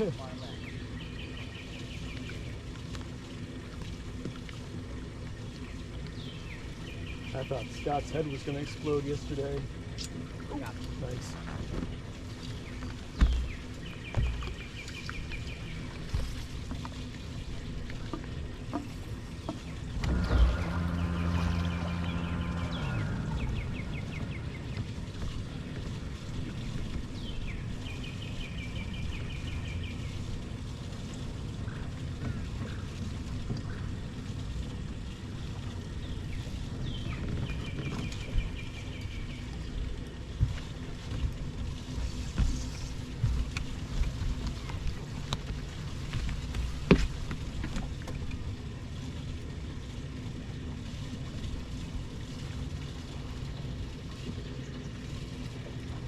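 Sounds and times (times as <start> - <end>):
low outdoor rumble: 0.0 - 56.0
dull low thumps: 18.0 - 27.6
bird calling: 19.5 - 25.2.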